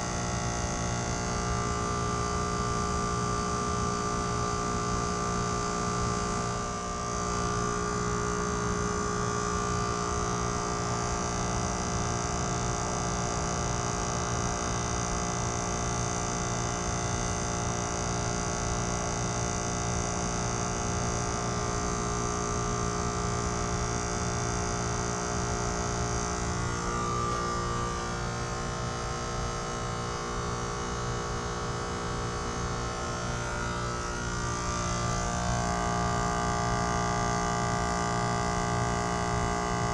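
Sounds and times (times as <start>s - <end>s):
heat pump compressor hum: 0.0s - 39.9s.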